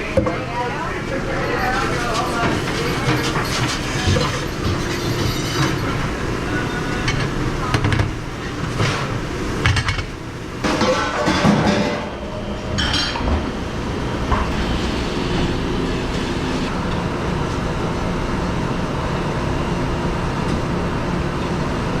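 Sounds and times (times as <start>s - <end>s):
dishwashing equipment running: 0.0s - 22.0s
dishes clinking: 1.6s - 16.7s.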